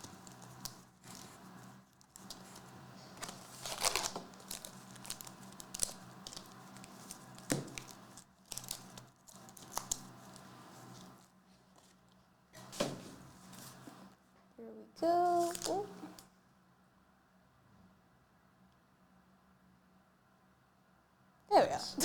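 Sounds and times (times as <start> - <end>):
card pack wrappers tearing: 0.0 - 11.2, 15.4 - 15.9
wrappers crinkling: 0.0 - 12.0, 15.4 - 16.0.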